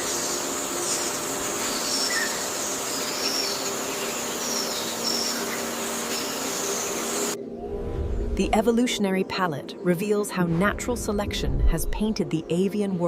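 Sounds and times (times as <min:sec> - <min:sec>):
high insect drone: 0:00.0 - 0:07.5
high bird chirps: 0:00.9 - 0:07.4.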